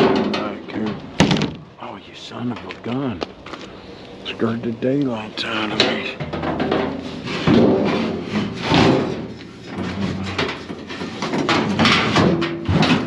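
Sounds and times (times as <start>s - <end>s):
hard items scraping and knocking: 2.6s - 13.0s.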